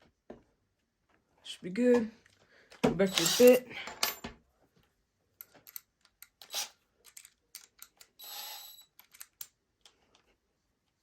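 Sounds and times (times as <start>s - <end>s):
drill buzzing rattle: 3.1s - 3.6s, 6.4s - 6.7s, 8.2s - 8.8s
metallic clicks of drill chuck: 5.6s - 9.6s.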